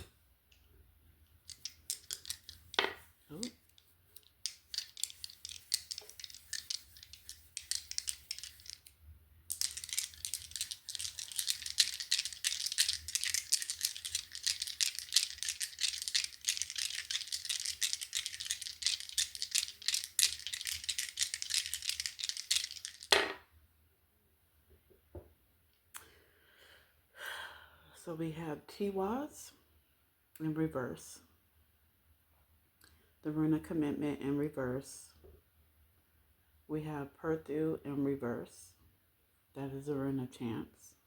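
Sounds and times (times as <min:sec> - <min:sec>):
rune pieces clicking and clattering: 0:01.2 - 0:23.4.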